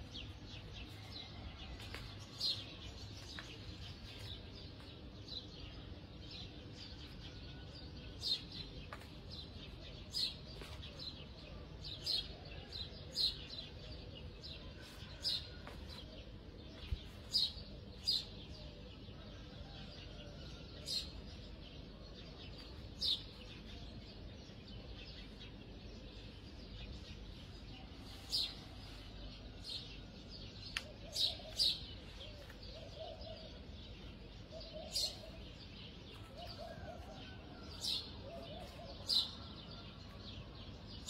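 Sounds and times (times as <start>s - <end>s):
low background noise: 0.0s - 41.0s
bird chirping: 22.0s - 41.0s.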